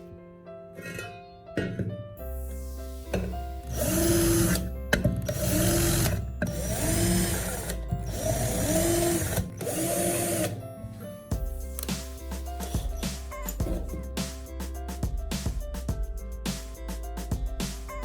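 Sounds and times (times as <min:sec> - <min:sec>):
background music: 0:00.0 - 0:18.0
power tool grinding: 0:03.7 - 0:10.6.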